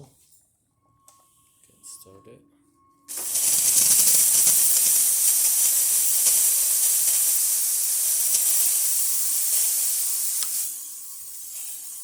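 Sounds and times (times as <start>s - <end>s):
steam wand hissing: 3.1s - 12.0s.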